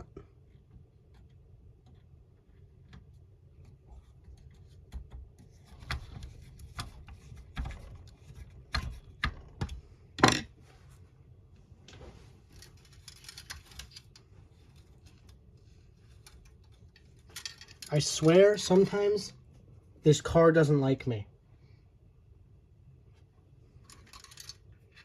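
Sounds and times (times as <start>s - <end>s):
plastic parts clicking and knocking: 0.1s - 10.5s, 12.5s - 15.4s, 16.0s - 18.0s, 23.8s - 25.0s.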